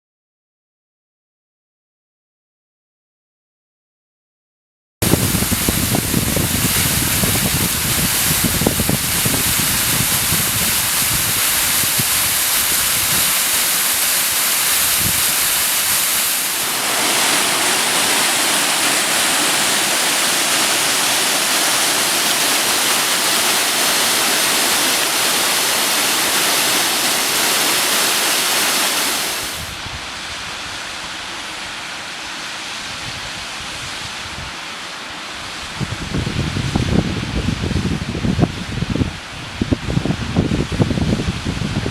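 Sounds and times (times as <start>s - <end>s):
waterfall roaring: 5.0s - 33.6s.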